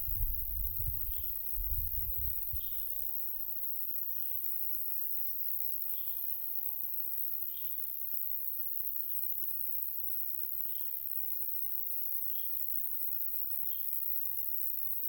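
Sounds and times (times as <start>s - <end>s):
wind rumble on microphone: 0.0s - 3.0s
insects chirring: 0.0s - 15.0s.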